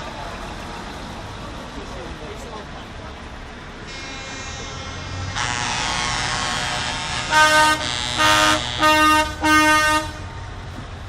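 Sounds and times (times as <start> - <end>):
truck engines rumbling: 0.0 - 11.0
truck air horn blasts: 3.9 - 10.4.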